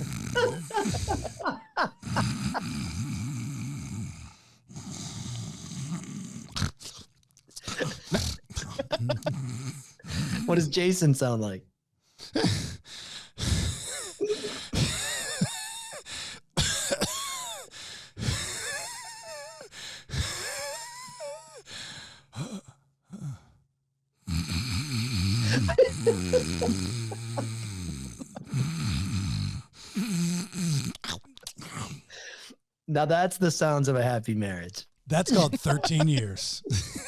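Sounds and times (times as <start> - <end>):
man squealing and whimpering: 0.0 - 1.6, 25.4 - 29.0, 35.2 - 36.4
man groaning like snoring: 0.0 - 6.6, 7.7 - 10.6, 24.3 - 32.1, 35.2 - 37.0.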